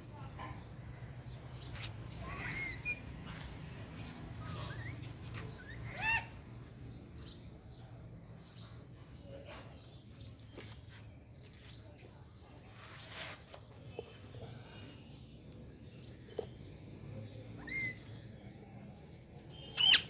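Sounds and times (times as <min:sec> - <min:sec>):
parakeet chirping calls: 0:04.4 - 0:06.4, 0:17.6 - 0:18.2, 0:19.5 - 0:20.0.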